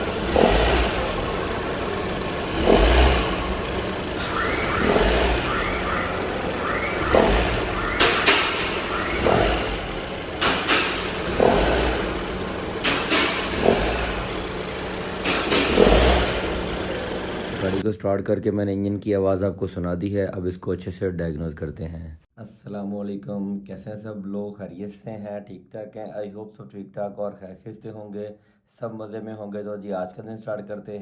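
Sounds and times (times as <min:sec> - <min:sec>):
car engine revving: 0:00.0 - 0:17.8
sharp clicks: 0:00.0 - 0:17.8.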